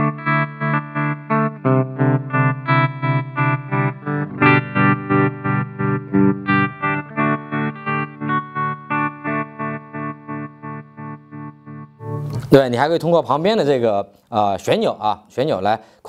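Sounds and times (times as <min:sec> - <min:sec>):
electric guitar chords with tremolo: 0:00.0 - 0:12.5.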